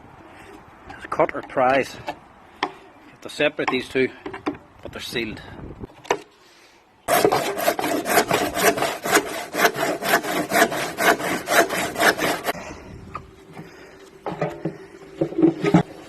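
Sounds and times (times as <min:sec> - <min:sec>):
saw cutting plastic: 0:07.1 - 0:12.6.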